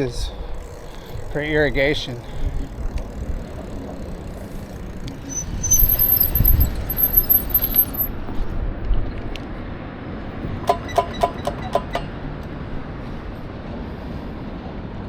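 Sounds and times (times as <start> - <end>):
wind rumble on microphone: 0.0 - 10.7
high-pitched squeaks: 4.3 - 8.1.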